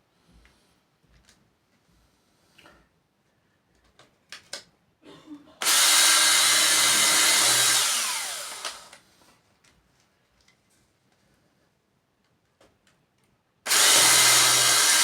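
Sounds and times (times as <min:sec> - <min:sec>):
electric drill drilling: 0:05.6 - 0:09.0, 0:13.7 - 0:15.0.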